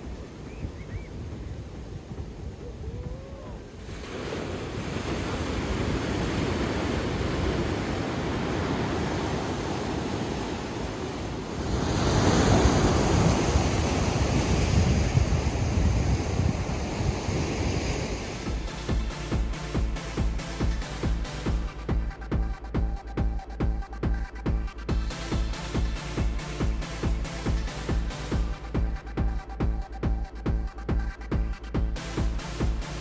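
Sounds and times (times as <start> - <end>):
steady rushing noise: 0.0 - 22.1.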